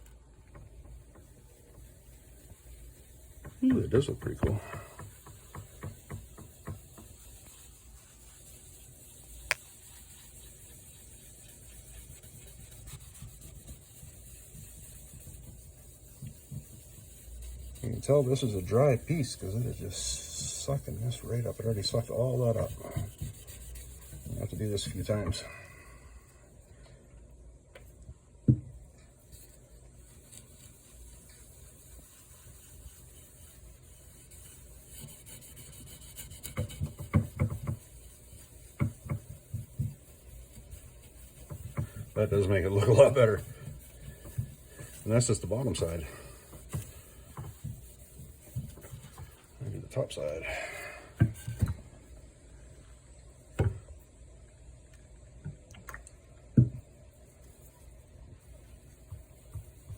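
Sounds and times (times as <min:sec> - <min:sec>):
hand wiping wooden board: 0:00.5 - 0:25.6, 0:28.8 - 0:52.2, 0:56.7 - 0:59.9
dull knocks of wooden board: 0:36.6 - 0:37.8, 0:38.8 - 0:40.0, 0:53.6 - 0:53.8.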